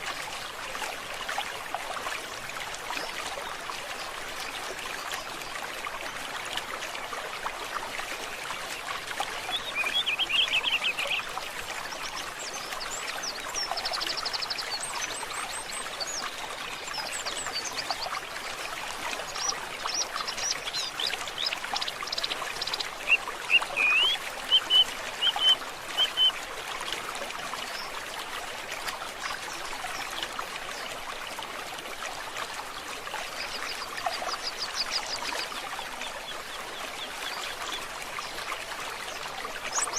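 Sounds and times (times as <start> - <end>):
stream water trickling: 0.0 - 39.9
songbirds singing: 9.4 - 11.3, 19.2 - 26.4
sharp bird calls: 23.1 - 26.3.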